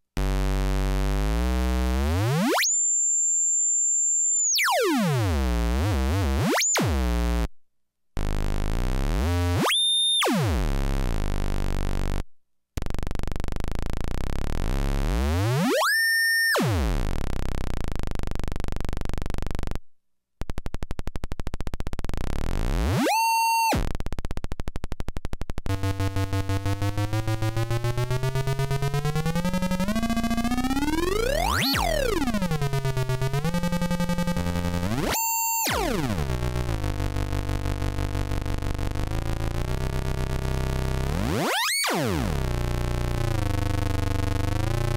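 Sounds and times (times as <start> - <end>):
buzzy synthesizer tone sweeping pitch: 25.7 - 44.9.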